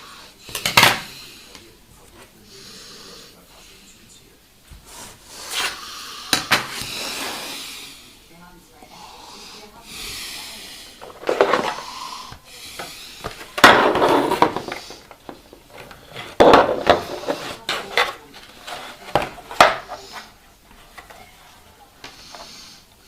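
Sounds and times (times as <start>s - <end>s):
hard objects clattering and clicking: 11.0s - 11.9s, 13.2s - 20.1s.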